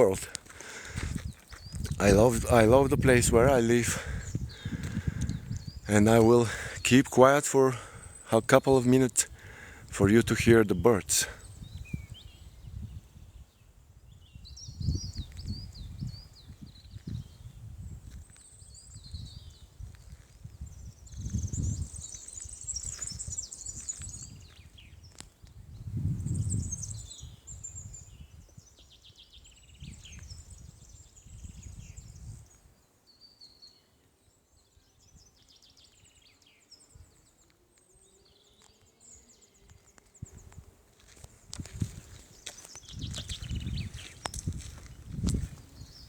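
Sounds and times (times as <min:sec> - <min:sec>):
songbirds chirping and trilling: 0:00.0 - 0:46.0
low rumbles on microphone: 0:01.0 - 0:05.9, 0:42.9 - 0:46.0.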